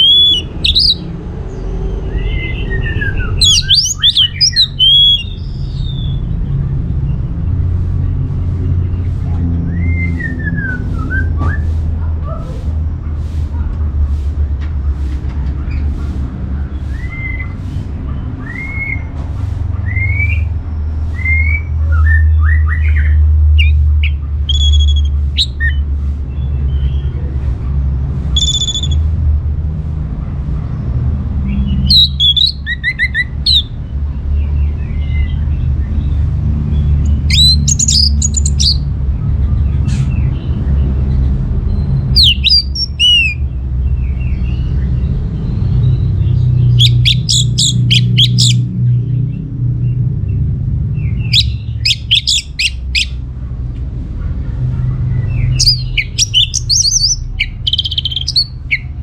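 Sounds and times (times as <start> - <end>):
thrush singing whistles: 0.0 - 1.1, 2.1 - 6.2, 23.6 - 25.8, 28.4 - 29.0, 31.8 - 33.8, 37.1 - 38.8, 42.2 - 43.4, 46.7 - 48.6, 51.2 - 53.2, 55.6 - 58.9
steady low hum: 0.0 - 22.3.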